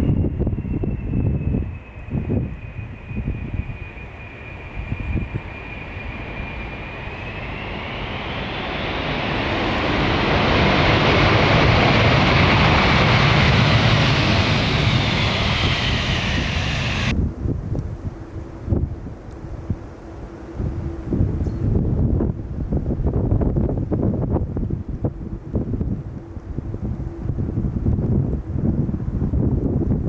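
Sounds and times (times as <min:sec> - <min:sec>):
jet engines whining: 0:00.0 - 0:17.2.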